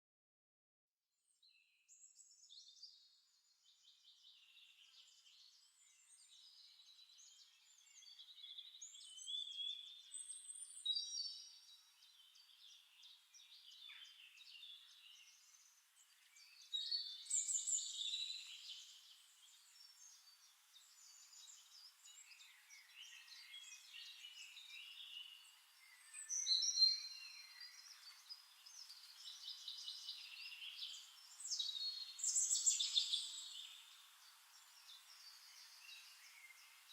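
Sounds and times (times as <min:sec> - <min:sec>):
songbirds chirping and trilling: 0:01.5 - 0:36.9.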